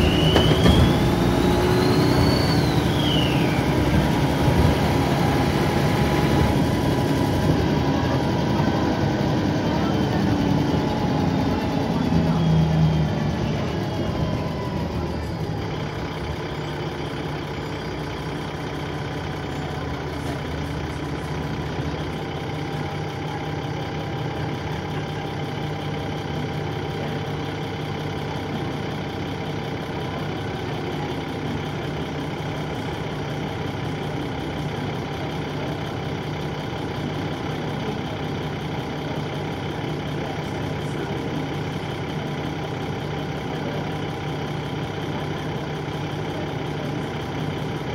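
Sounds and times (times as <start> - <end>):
bus engine idling: 0.0 - 47.9.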